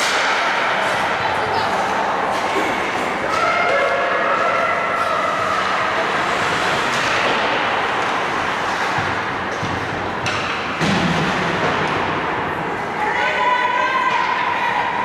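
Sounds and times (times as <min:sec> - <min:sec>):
skates scraping on ice: 0:01.7 - 0:10.8.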